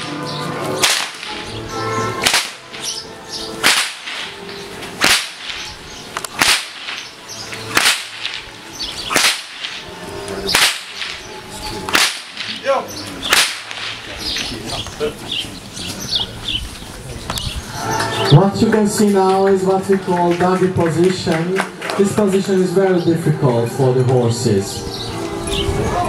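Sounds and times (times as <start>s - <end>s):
whip cracking: 0.0s - 1.6s, 2.2s - 14.5s.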